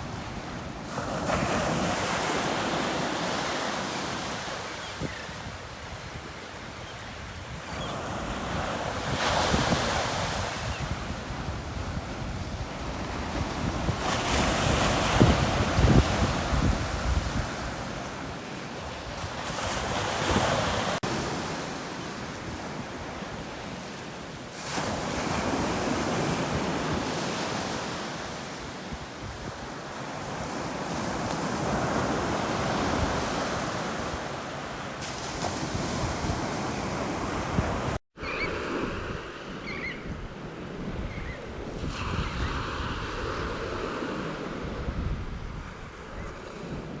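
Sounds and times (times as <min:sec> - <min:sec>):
ocean surf breaking: 0:00.0 - 0:05.2, 0:08.2 - 0:39.6.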